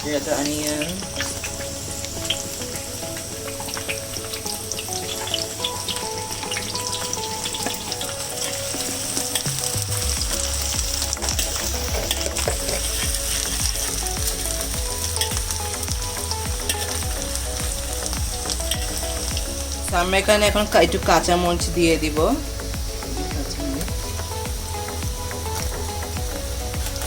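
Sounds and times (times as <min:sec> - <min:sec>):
onions sizzling in oil: 0:00.0 - 0:27.0
stirring clicks and scrapes: 0:00.6 - 0:19.6.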